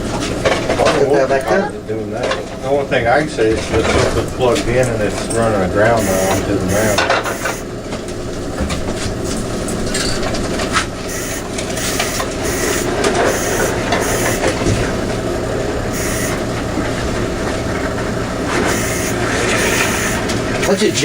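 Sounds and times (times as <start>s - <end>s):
machine humming: 0.0s - 21.0s
irregular hissing: 18.6s - 21.0s.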